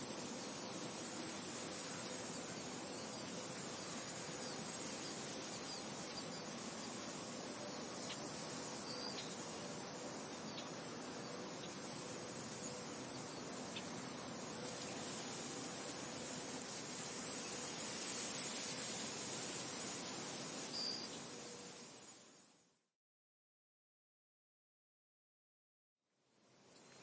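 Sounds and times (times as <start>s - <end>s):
steady wind hiss: 0.0s - 22.9s, 26.2s - 27.0s
faint high chirps: 20.6s - 22.7s.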